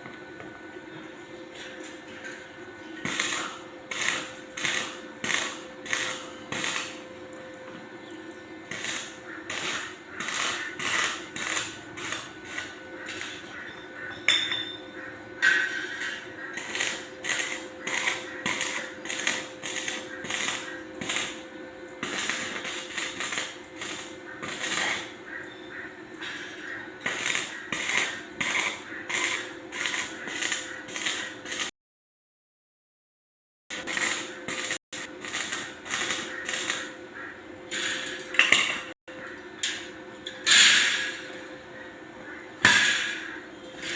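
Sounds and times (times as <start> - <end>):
steady machine hum: 0.0 - 31.7, 33.7 - 43.9
welding bursts: 3.0 - 7.1, 8.6 - 13.7, 15.4 - 25.5, 26.6 - 31.7, 33.7 - 38.6.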